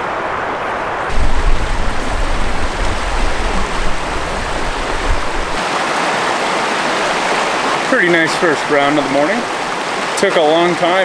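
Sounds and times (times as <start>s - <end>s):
river water rushing: 0.0s - 11.0s
deep uneven rumble: 1.1s - 5.6s.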